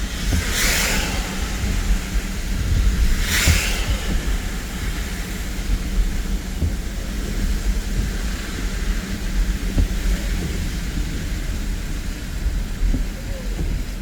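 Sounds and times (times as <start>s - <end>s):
car engine and road noise: 0.0s - 14.0s
short hiss: 0.2s - 7.0s.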